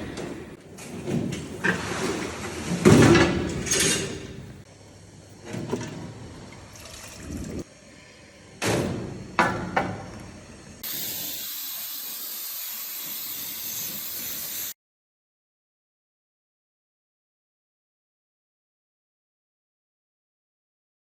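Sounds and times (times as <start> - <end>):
spraying hiss: 10.8 - 14.8.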